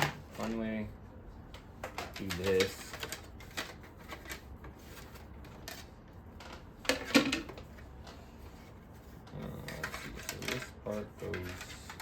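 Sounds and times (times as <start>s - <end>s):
plastic parts clicking and knocking: 1.5s - 8.2s, 9.6s - 12.0s
plastic clatter: 1.8s - 8.2s.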